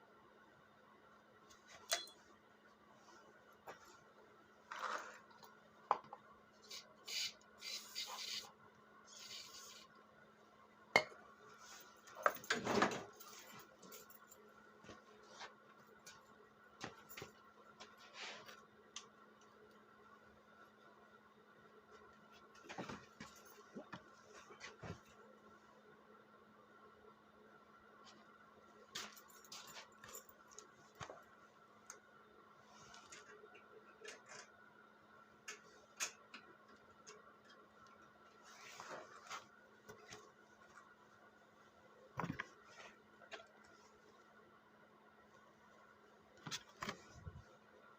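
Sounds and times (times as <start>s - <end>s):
faint steady hum: 0.0s - 47.9s
scrape and rustle: 4.7s - 5.3s, 9.1s - 9.9s, 11.5s - 12.2s, 17.8s - 18.6s, 38.4s - 40.3s.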